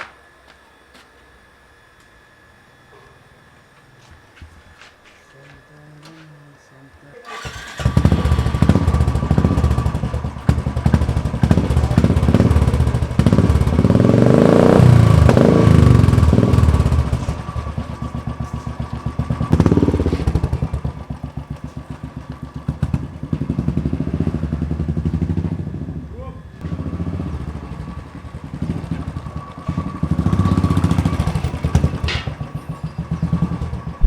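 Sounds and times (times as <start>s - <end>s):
motorcycle engine revving: 7.2s - 34.0s.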